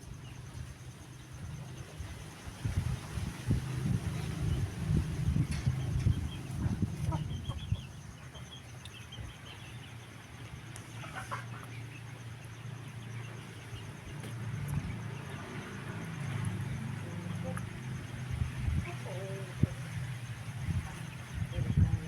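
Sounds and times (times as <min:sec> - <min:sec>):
low rumble: 0:02.6 - 0:08.3
chickens clucking: 0:04.1 - 0:09.7, 0:10.7 - 0:12.4, 0:16.2 - 0:22.0.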